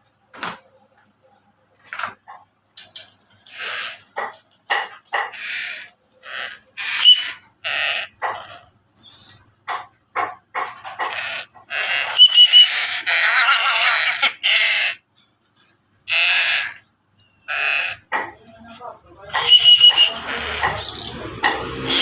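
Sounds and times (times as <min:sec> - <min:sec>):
young crow squawking: 0:05.2 - 0:08.2, 0:11.0 - 0:15.0, 0:16.1 - 0:16.8, 0:17.5 - 0:18.1, 0:19.3 - 0:21.2.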